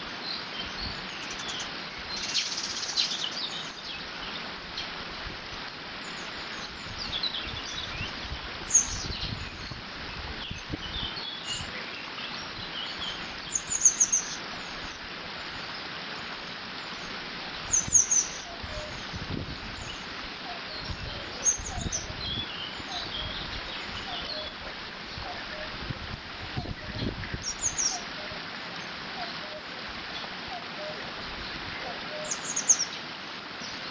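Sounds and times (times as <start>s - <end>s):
bird chirping: 20.7s - 24.6s, 26.9s - 28.0s.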